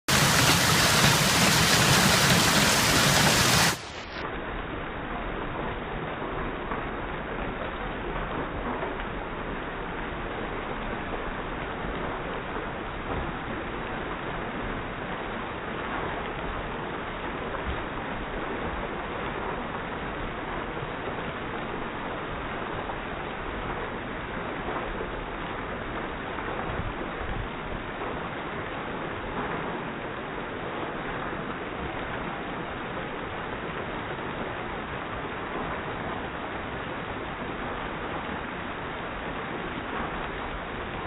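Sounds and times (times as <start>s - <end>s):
hail falling: 0.1s - 3.9s.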